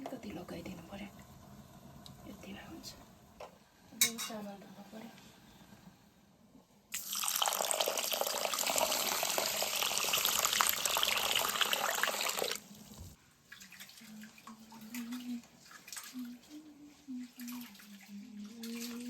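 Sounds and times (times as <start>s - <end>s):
water splashing into pot: 6.9s - 12.6s.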